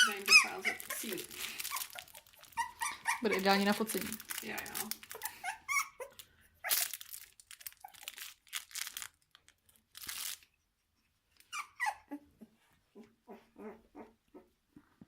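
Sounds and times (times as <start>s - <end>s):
rustling and crinkling bedding: 0.0s - 5.5s, 6.6s - 10.5s
puppy whimpering: 0.0s - 7.0s, 7.7s - 8.2s, 10.5s - 14.8s.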